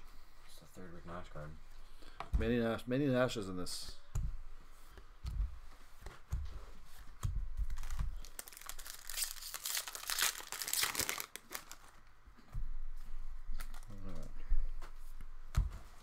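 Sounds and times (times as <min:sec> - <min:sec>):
wrapper crinkling: 0:07.6 - 0:12.1.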